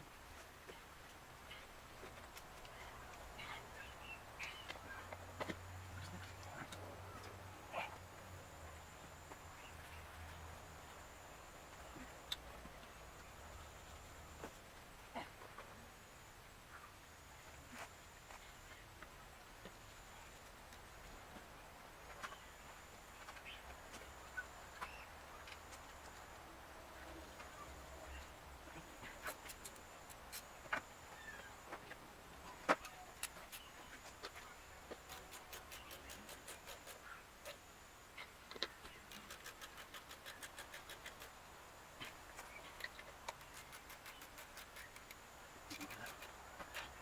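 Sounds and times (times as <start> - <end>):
quick evenly spaced clicks: 38.5 - 41.4, 42.4 - 47.0.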